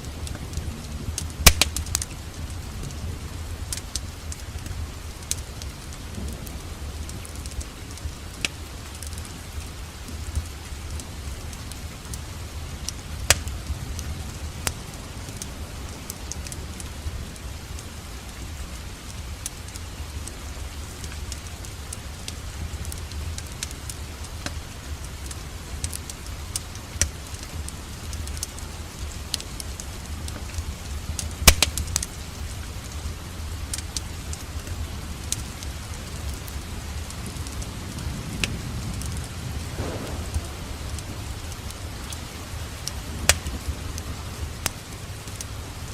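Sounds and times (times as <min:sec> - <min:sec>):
rain hissing: 0:00.0 - 0:45.9
wood fire crackling and popping: 0:00.0 - 0:45.9
low rumble: 0:39.6 - 0:42.8.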